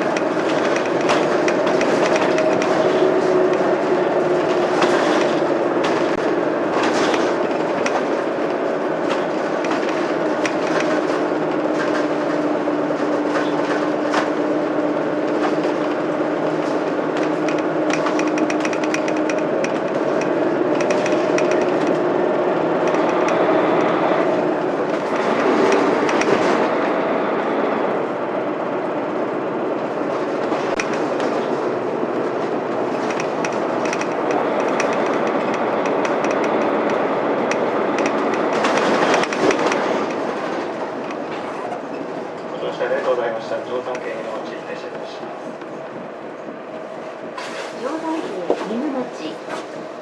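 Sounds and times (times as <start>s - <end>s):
body rattling and clicking: 0.0s - 26.7s, 30.1s - 42.5s
bus diesel engine drone: 0.0s - 50.0s.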